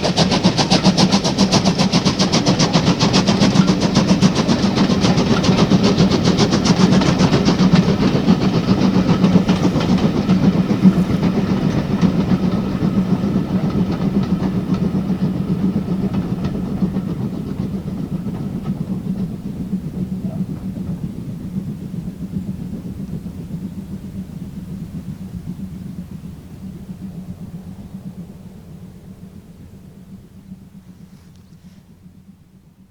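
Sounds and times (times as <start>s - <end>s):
wheels clicking over rail joints: 0.0s - 26.0s
steam train passing: 0.0s - 32.9s.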